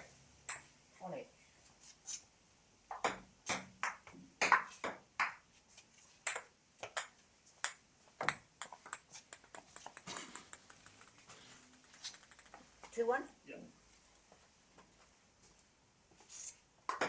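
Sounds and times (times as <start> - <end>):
table tennis ball clicking: 6.3 - 12.8
ball bouncing to rest: 6.3 - 13.0.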